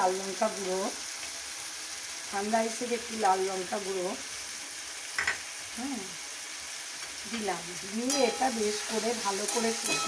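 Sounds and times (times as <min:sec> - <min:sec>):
masala sizzling in hot oil: 0:00.0 - 0:10.0.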